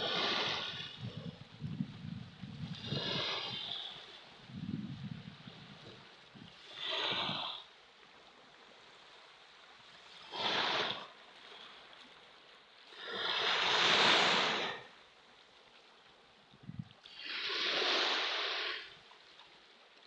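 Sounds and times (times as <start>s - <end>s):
ocean waves washing in: 0.0s - 1.6s, 2.5s - 7.8s, 8.4s - 12.0s, 12.8s - 15.2s, 17.0s - 19.0s.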